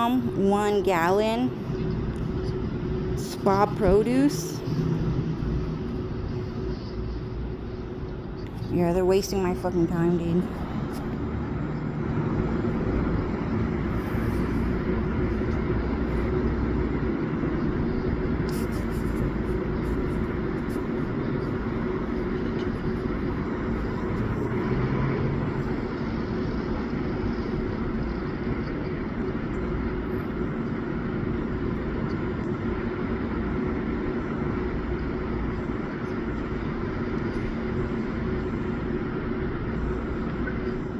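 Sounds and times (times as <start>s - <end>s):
mechanical hum: 0.0s - 40.9s.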